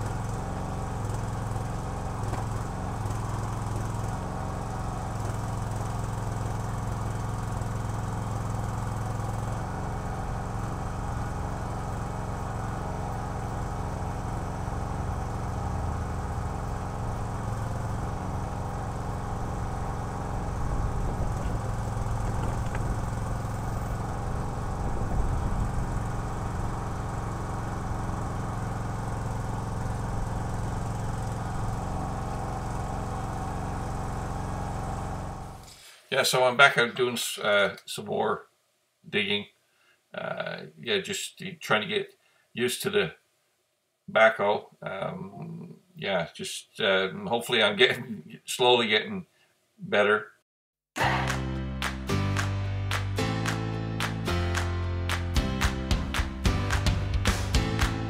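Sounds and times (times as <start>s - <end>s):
small gas engine running: 0.0s - 36.0s, 51.0s - 58.0s.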